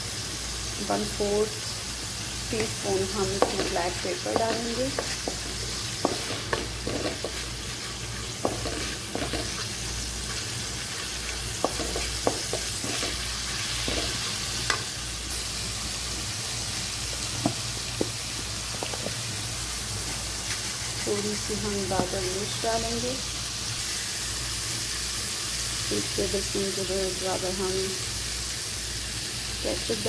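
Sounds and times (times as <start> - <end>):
masala sizzling in oil: 0.0 - 30.0
wooden spatula scraping pan: 2.5 - 14.3.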